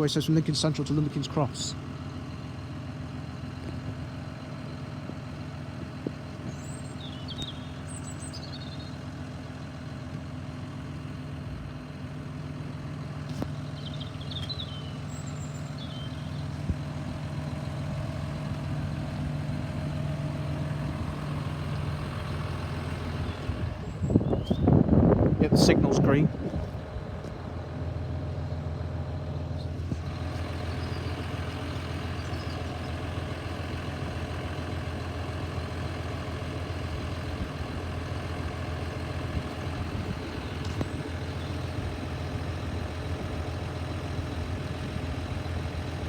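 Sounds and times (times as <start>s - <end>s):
vehicle engine idling: 0.0s - 46.0s
short bird chirps: 6.5s - 9.0s, 13.6s - 16.4s, 24.1s - 24.7s.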